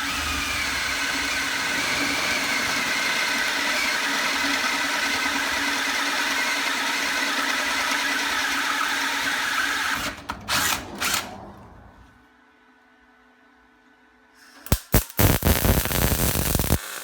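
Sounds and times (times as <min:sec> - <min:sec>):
power tool motor running: 0:00.0 - 0:11.3.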